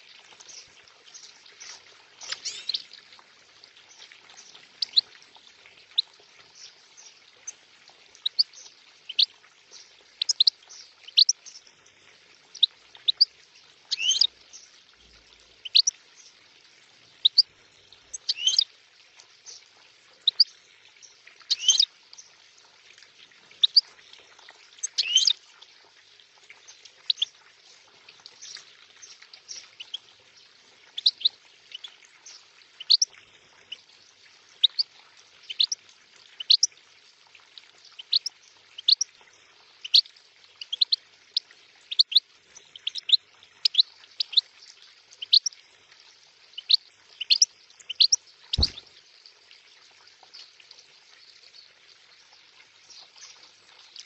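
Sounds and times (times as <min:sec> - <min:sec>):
water trickling: 0:00.0 - 0:54.0
songbird chirping: 0:00.5 - 0:02.9, 0:13.9 - 0:14.8, 0:15.7 - 0:16.3, 0:18.1 - 0:18.6, 0:21.4 - 0:21.9, 0:24.8 - 0:25.4, 0:46.6 - 0:48.9.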